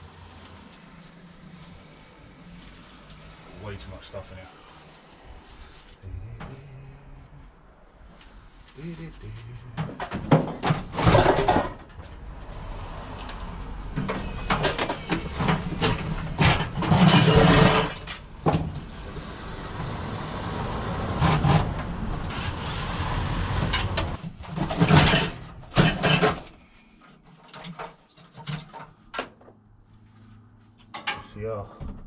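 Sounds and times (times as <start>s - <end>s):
scrap metal clattering: 9.8s - 12.1s, 14.0s - 18.7s, 23.6s - 26.6s.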